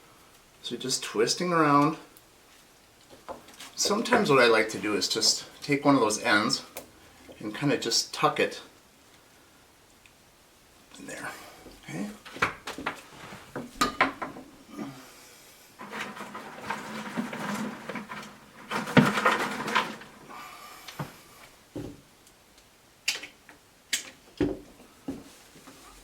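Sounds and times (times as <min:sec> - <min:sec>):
twigs rustling and scraping: 0:01.7 - 0:06.6, 0:15.8 - 0:20.4.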